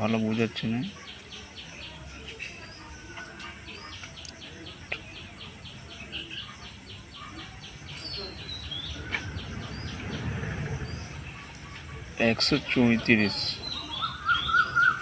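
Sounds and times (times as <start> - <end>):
low rumble: 8.5 - 12.2.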